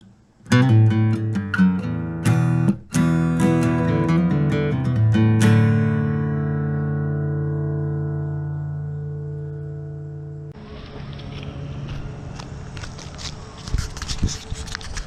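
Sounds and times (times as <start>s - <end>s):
acoustic guitar strumming chords: 0.4s - 12.8s.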